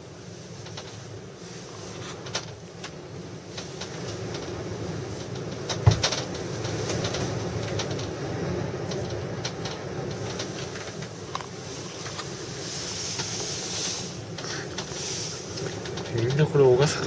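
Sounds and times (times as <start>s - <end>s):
clicks and rattles: 5.2s - 8.2s, 8.8s - 12.3s, 14.3s - 16.5s.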